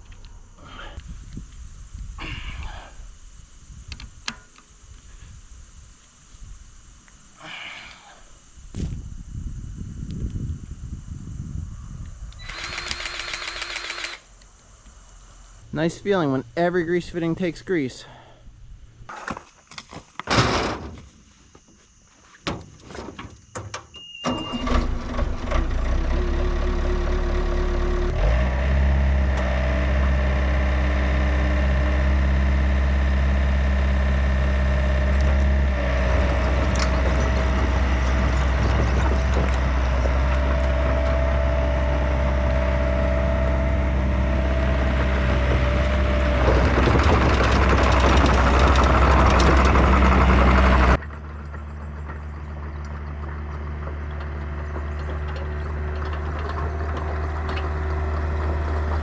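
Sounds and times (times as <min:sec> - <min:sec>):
excavator engine running: 0:12.3 - 0:18.3, 0:24.2 - 0:59.0
excavator diesel engine starting: 0:12.4 - 0:14.3, 0:23.9 - 0:59.0.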